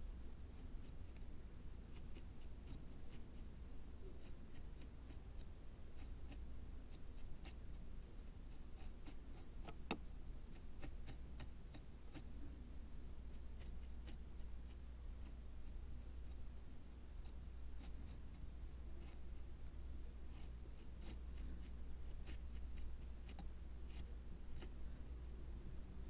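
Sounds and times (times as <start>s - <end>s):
light scratching: 13.2s - 25.0s.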